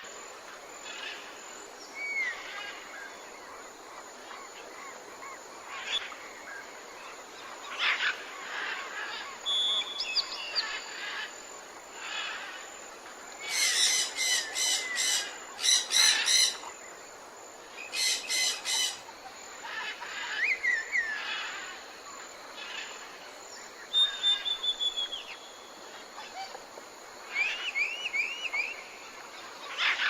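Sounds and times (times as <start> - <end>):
background hiss: 0.0 - 30.0
bird whistles: 9.5 - 10.3, 23.9 - 25.4
birds chattering calls: 13.4 - 16.7.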